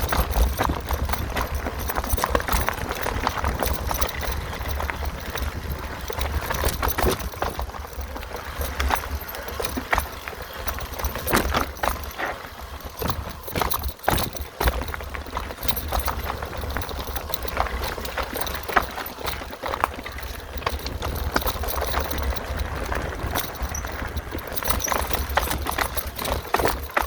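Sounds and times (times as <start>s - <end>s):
bike tyres clattering on rocks: 0.0s - 27.0s
wind on microphone: 22.0s - 26.5s.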